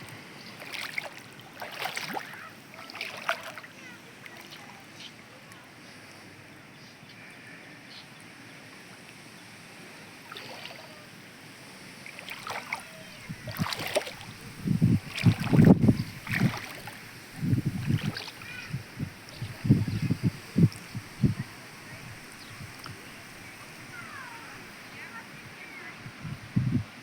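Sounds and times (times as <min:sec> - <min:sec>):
water sloshing and splashing: 0:00.0 - 0:04.9, 0:10.2 - 0:11.1, 0:12.0 - 0:27.0.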